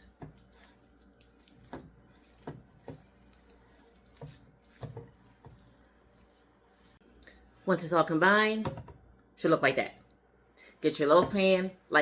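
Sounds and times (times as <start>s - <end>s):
wet squelching of meat mixed by hand: 0.0s - 7.5s.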